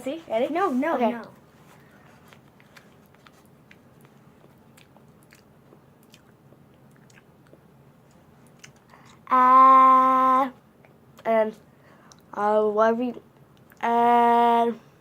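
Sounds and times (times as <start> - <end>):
person chewing paper: 2.2 - 9.2.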